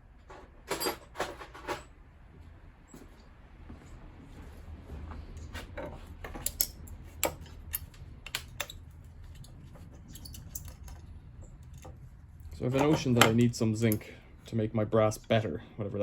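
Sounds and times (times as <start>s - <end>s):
low steady hum: 0.0s - 16.0s
metallic clicks of hand tools: 6.4s - 8.8s, 12.8s - 14.1s.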